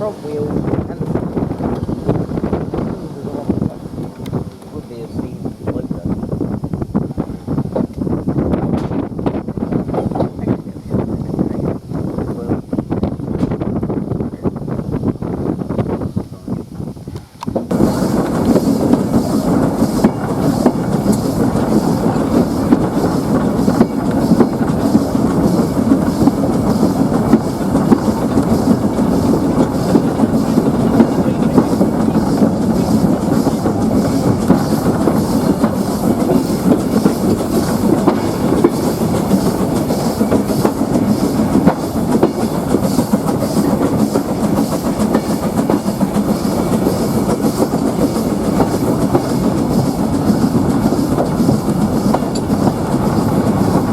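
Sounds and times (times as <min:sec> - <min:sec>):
train wheels rumbling on rails: 0:00.0 - 0:53.9
clatter over rail joints: 0:17.4 - 0:53.9.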